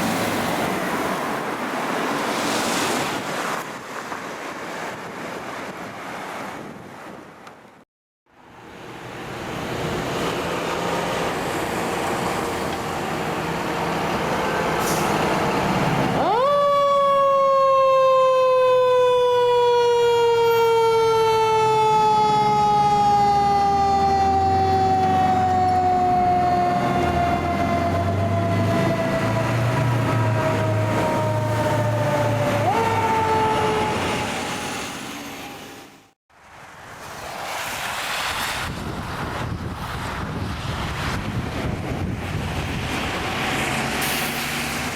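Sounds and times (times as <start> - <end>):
road noise: 0.0 - 44.9
truck engine rumble: 8.5 - 16.4.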